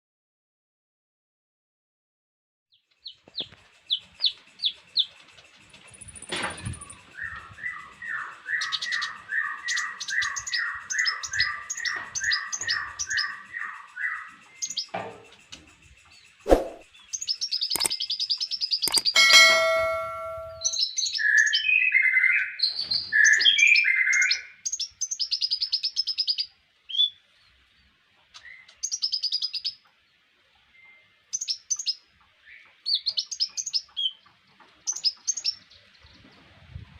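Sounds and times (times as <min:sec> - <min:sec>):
songbird singing: 0:02.7 - 0:27.5, 0:30.7 - 0:36.4
sharp clicks: 0:17.7 - 0:18.0, 0:18.8 - 0:19.6.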